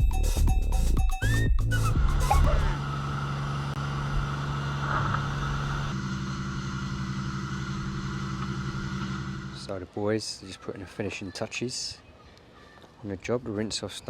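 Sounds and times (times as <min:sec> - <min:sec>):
pressure washer engine running: 0:02.1 - 0:09.7.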